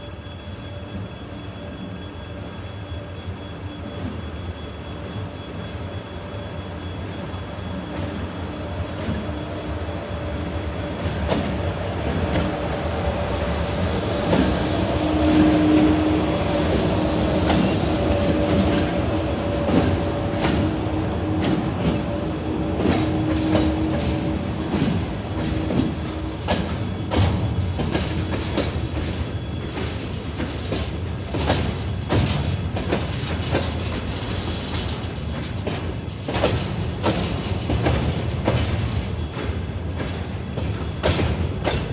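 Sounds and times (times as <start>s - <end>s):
train wheels rumbling: 0.0s - 41.9s
wheel squeal: 0.0s - 41.9s.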